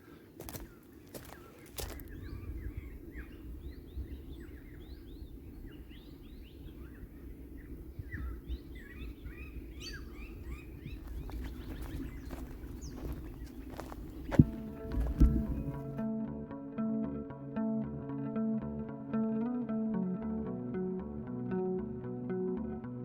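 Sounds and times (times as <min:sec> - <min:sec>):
low outdoor rumble: 0:00.0 - 0:16.0
small birds chirping: 0:00.0 - 0:16.0.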